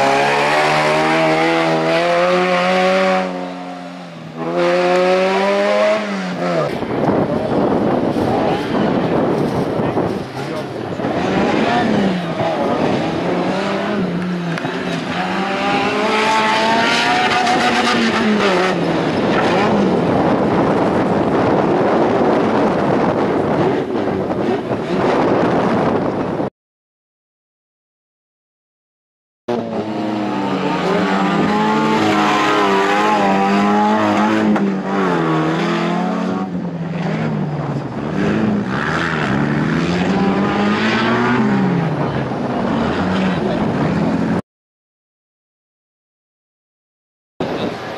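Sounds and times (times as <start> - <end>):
race vehicle engine under load: 0.0 - 26.5, 29.5 - 44.4
tyres on rough terrain: 0.0 - 26.5.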